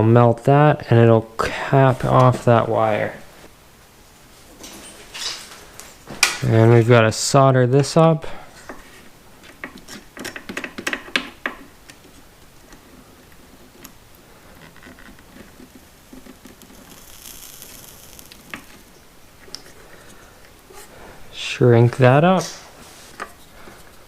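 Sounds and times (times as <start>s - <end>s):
solder sizzling hiss: 15.2s - 21.6s.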